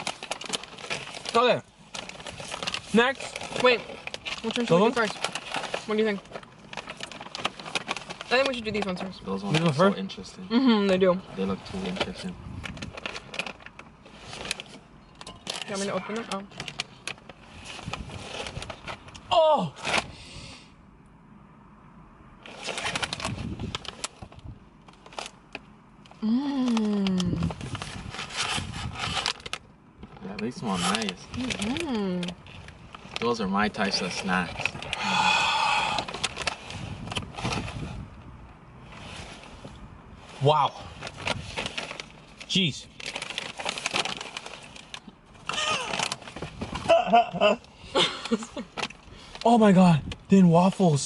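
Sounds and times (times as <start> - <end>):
plastic wrapper crinkling: 0.0 - 10.0, 11.0 - 19.2, 22.4 - 35.0, 35.9 - 37.6, 41.0 - 46.8
person saying ooh: 19.3 - 19.8.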